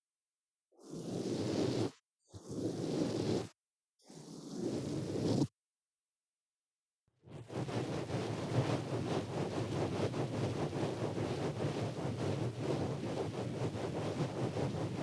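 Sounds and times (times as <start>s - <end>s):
ear-cleaning tool scraping microphone: 0.8s - 5.5s.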